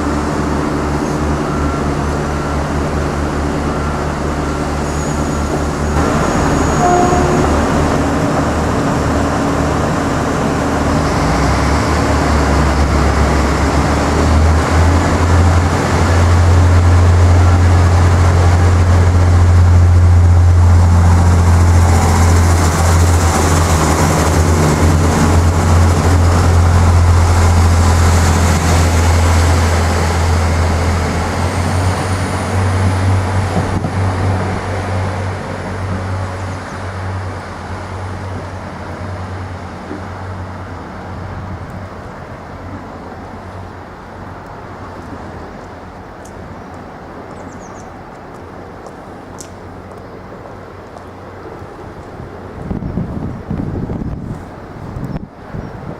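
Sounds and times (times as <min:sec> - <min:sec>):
diesel train engines droning: 0:00.0 - 0:55.9.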